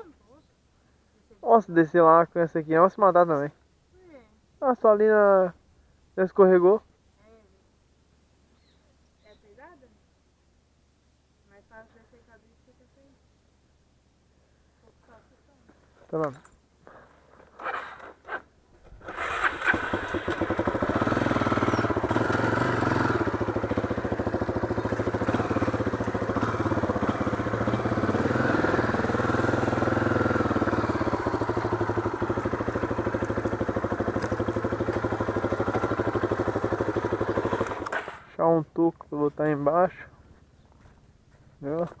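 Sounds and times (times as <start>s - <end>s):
motorcycle engine starting and running: 16.2s - 38.4s.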